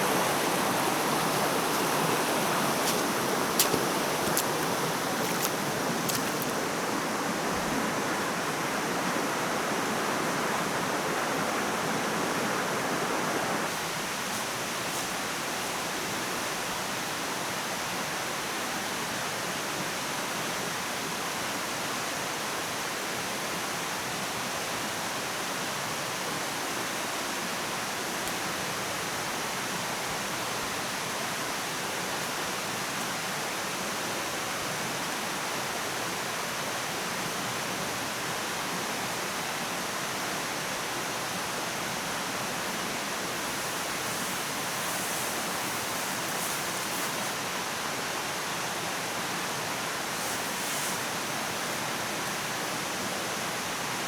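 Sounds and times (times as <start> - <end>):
running water rushing: 0.0 - 17.5, 40.8 - 54.0.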